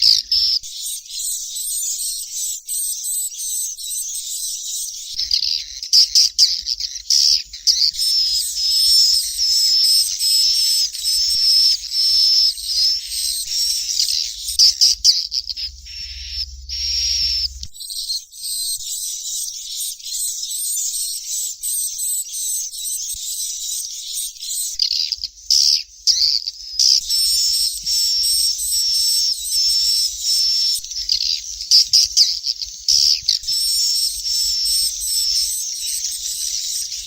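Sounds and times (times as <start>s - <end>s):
repeated short high bird calls: 0.0s - 21.4s
swiftlet chicks chirping: 0.0s - 37.0s.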